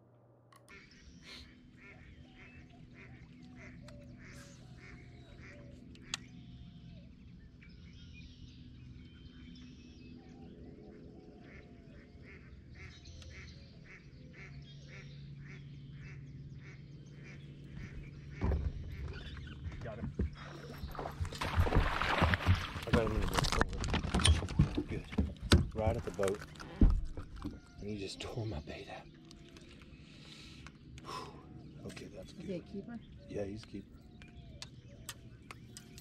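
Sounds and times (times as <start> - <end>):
bird quacking calls: 0.6 - 6.2, 11.4 - 21.5.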